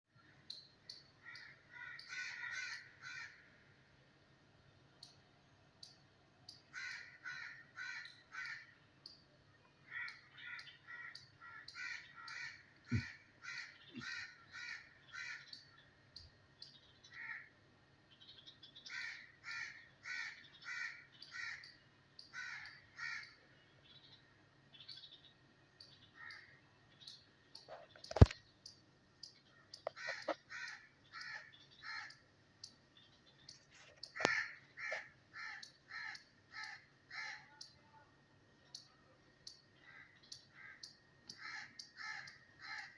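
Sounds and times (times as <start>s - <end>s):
crows cawing: 1.2s - 3.6s, 6.7s - 8.8s, 9.8s - 15.6s, 17.1s - 17.6s, 18.8s - 23.4s, 26.2s - 26.6s, 29.8s - 32.2s, 34.0s - 37.5s, 39.8s - 42.9s.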